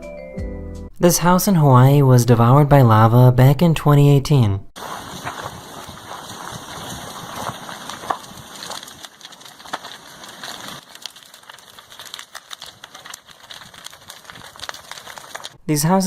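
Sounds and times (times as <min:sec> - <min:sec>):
lava crackling and popping: 0:04.8 - 0:15.6.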